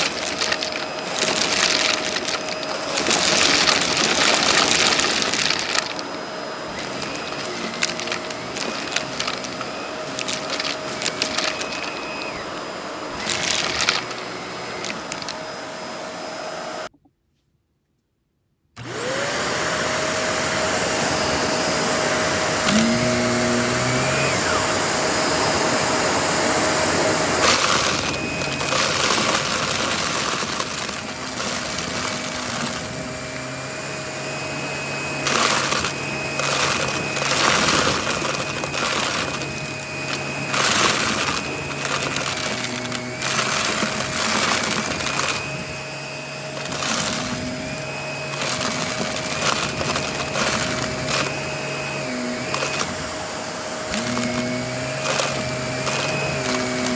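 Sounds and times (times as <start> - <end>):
cardboard pieces clattering: 0.0 - 15.5, 22.6 - 24.6, 27.4 - 33.7, 35.1 - 45.7, 46.5 - 53.0, 53.9 - 56.9
vacuum cleaner running: 0.0 - 16.9, 18.8 - 56.9.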